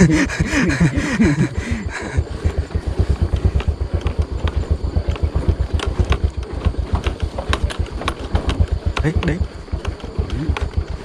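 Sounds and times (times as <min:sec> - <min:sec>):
bike rattling on dirt trail: 0:00.0 - 0:11.0
small motorcycle engine: 0:00.0 - 0:11.0
sharp knocks: 0:03.2 - 0:10.9.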